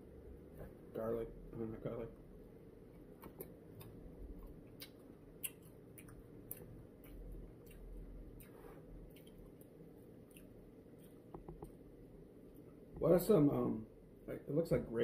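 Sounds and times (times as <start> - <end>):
man chewing food: 2.9 - 12.9.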